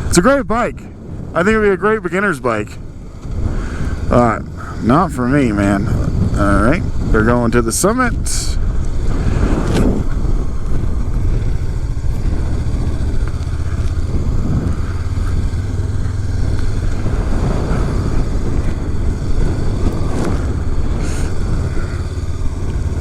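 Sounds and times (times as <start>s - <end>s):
motorcycle engine running: 0.0s - 23.0s
rider talking: 0.0s - 23.0s.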